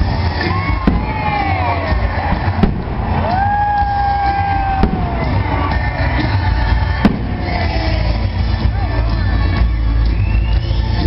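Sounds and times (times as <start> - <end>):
fireworks banging: 0.0 - 8.7.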